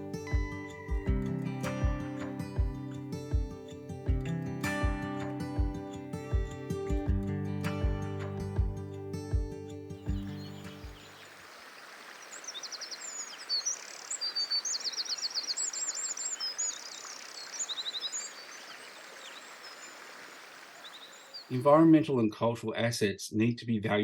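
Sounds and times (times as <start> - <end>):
music: 0.0 - 11.1
birds trilling and chirping: 10.1 - 21.9
faint background hiss: 10.2 - 22.4.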